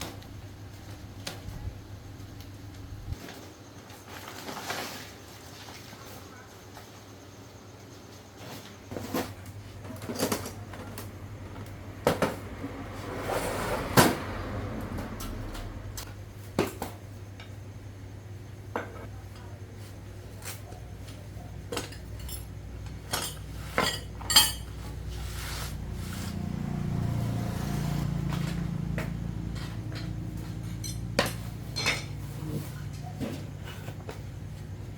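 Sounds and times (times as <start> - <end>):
metal tools clinking: 21.6 - 25.1, 30.0 - 32.3.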